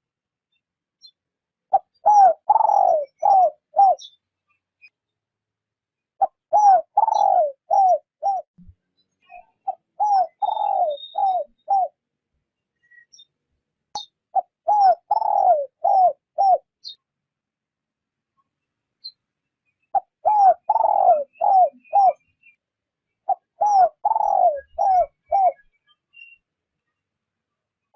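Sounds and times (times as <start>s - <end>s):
small birds chirping: 0.4s - 17.2s, 18.2s - 27.9s
dove cooing: 1.7s - 4.1s, 6.2s - 8.5s, 9.6s - 12.0s, 14.3s - 17.0s, 19.9s - 22.2s, 23.2s - 25.7s.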